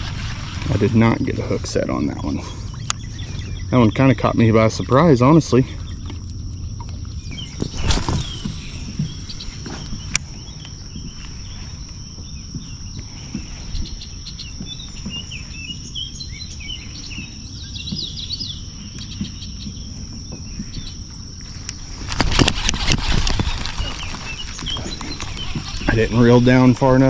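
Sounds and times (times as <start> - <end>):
low rumble: 0.0 - 11.0
high-pitched insect drone: 0.0 - 17.7, 20.2 - 27.0
birds chirping: 0.0 - 27.0.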